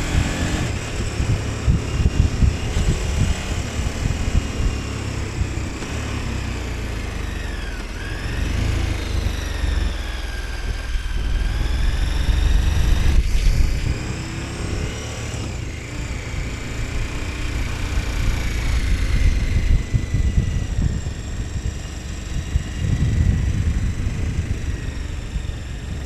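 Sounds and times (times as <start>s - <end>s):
motorcycle engine running: 0.0s - 26.0s
wind rushing: 10.3s - 15.7s.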